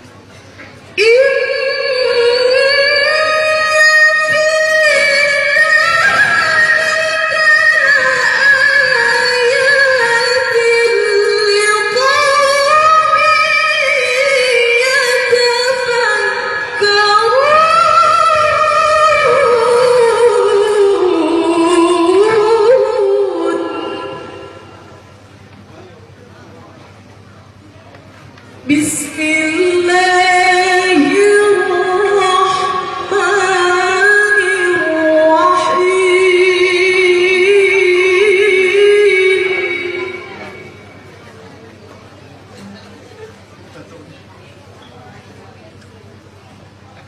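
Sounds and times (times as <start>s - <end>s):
woman reciting melodically: 0.9s - 25.0s, 28.6s - 41.0s.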